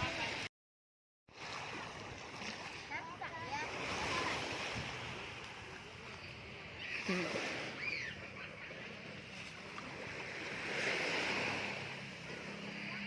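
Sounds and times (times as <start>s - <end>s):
sea surf washing ashore: 0.0s - 0.5s, 1.3s - 13.0s
faint high calls: 6.0s - 9.4s.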